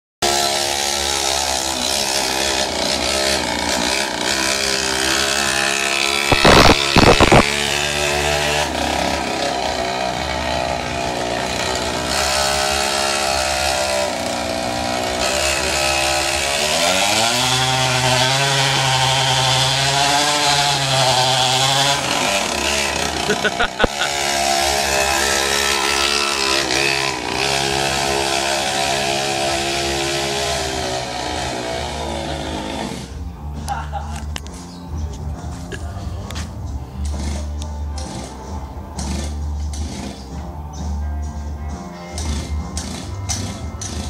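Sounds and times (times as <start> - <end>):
mini motorbike engine running: 0.2 - 33.9, 36.2 - 44.0
loud crackling blasts: 6.3 - 7.4.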